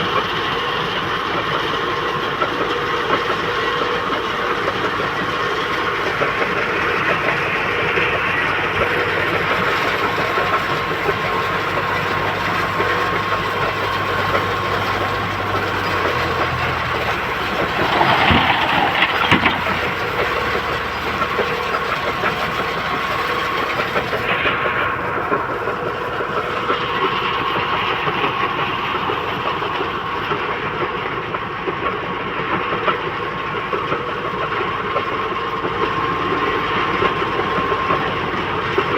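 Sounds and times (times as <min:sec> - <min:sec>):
heavy diesel machinery running: 0:00.0 - 0:38.9
steady whine: 0:02.4 - 0:31.1
mechanical clatter: 0:08.9 - 0:26.9.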